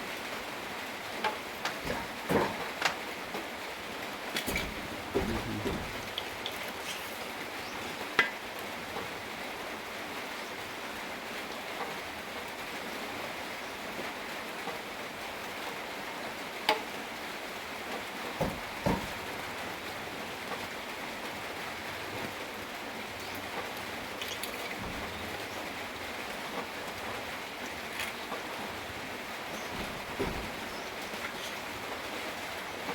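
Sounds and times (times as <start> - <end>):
steady rain falling: 0.0 - 32.9
heavy knocks: 1.2 - 3.0, 4.3 - 6.6, 18.4 - 19.7, 28.4 - 32.9.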